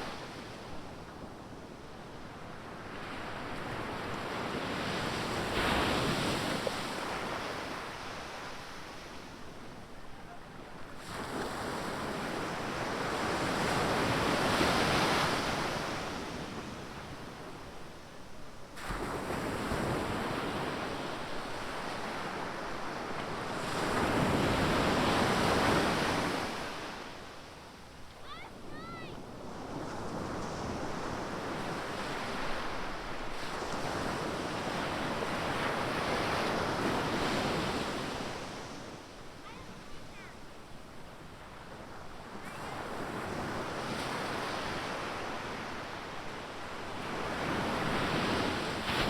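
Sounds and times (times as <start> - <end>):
surf waves washing onto beach: 18.7 - 49.0.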